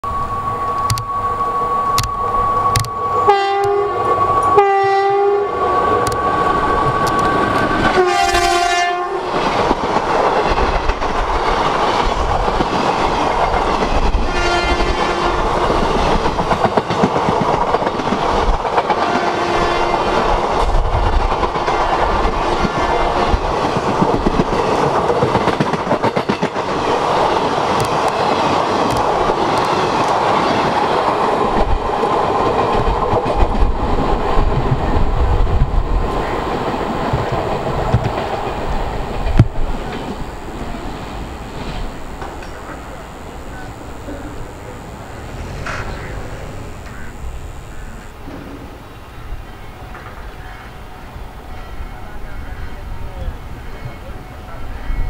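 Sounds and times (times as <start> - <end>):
train coaches rumbling past: 0.0 - 55.0
locomotive horn blasts: 2.7 - 5.6, 7.9 - 9.3, 14.3 - 15.4.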